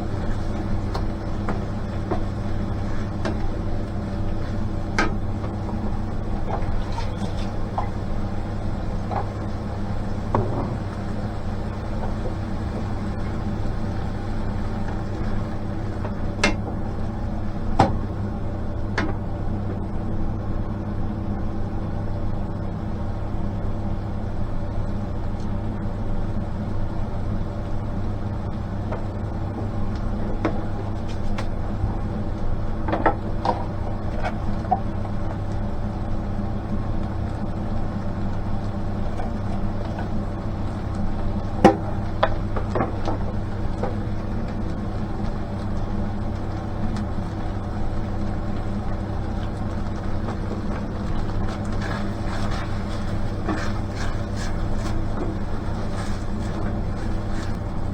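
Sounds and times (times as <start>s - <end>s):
steady mechanical hum: 0.0s - 57.9s.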